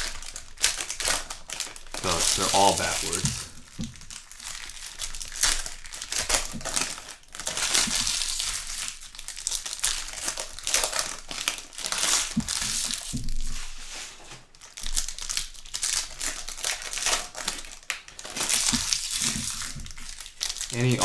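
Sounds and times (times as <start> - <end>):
wrappers crinkling: 0.0 - 21.0.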